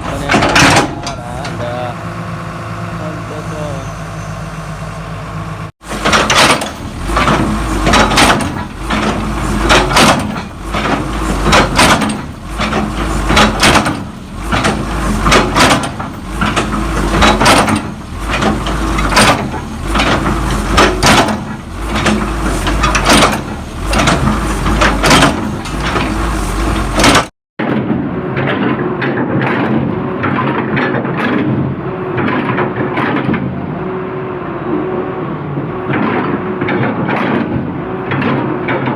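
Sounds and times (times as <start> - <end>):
low engine hum: 0.0 - 27.3.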